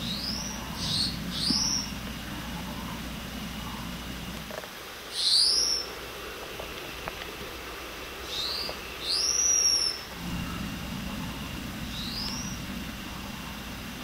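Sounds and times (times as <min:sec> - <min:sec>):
bird whistling upward sweeps: 0:05.2 - 0:05.9, 0:08.2 - 0:10.5, 0:11.9 - 0:12.7.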